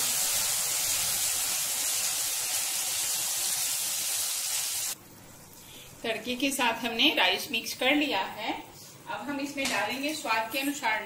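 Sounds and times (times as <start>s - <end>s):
rice sizzling in frying pan: 0.0s - 5.0s.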